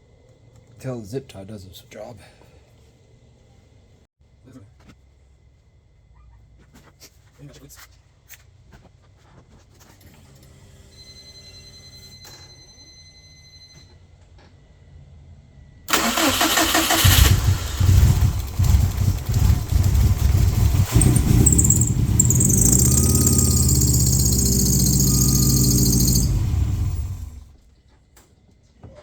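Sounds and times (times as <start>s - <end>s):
starter motor cranking: 15.9s - 27.6s
car engine revving unevenly: 16.7s - 27.5s.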